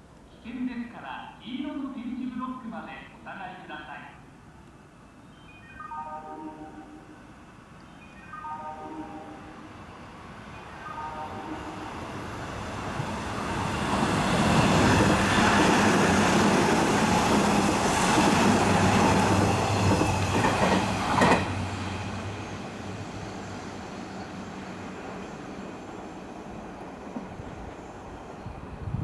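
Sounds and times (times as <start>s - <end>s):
train wheels rushing on rail: 11.8s - 29.0s
sharp train clacks: 12.7s - 28.4s.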